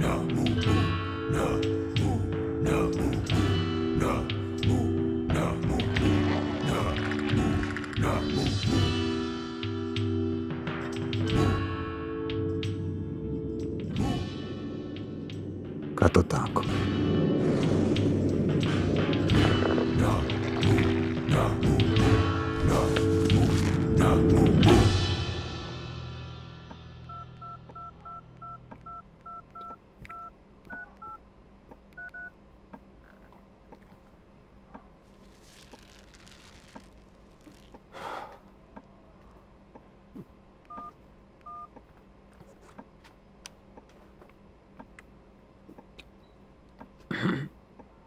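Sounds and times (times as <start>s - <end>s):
phone keypad beeps: 27.1s - 31.2s, 32.0s - 32.3s, 40.7s - 41.7s.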